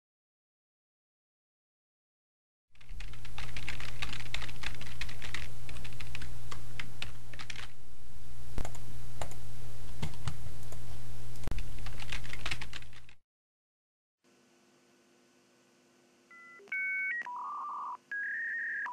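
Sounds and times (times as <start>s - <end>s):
rapid keyboard typing: 2.8s - 7.8s, 11.4s - 13.2s
steady low hum: 2.8s - 13.1s.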